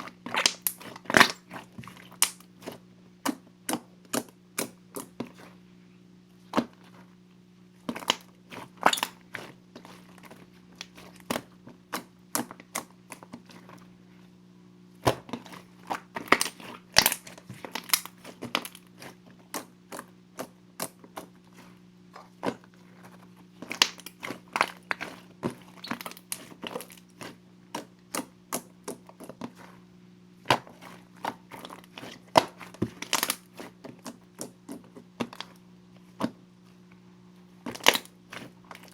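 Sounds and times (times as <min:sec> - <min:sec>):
slime squished by hand: 0:00.0 - 0:05.5, 0:15.0 - 0:29.8, 0:37.6 - 0:38.9
faint low hum: 0:00.0 - 0:38.9.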